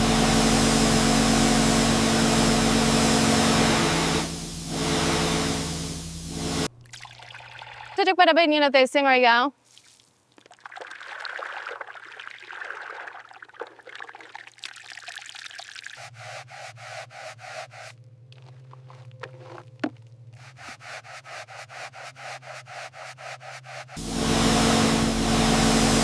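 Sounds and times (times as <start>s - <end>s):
steady low hum: 0.0s - 6.8s, 23.4s - 26.0s
stiff brush scrubbing a tyre: 16.0s - 26.0s.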